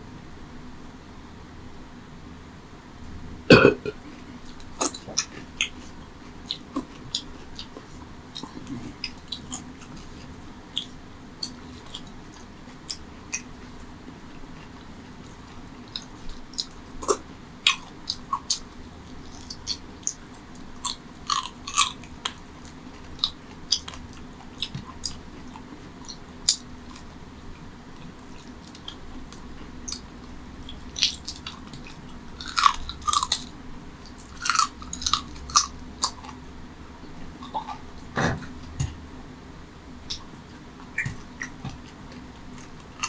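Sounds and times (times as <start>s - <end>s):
close chewing with wet smacks: 4.5s - 36.4s, 40.0s - 43.0s.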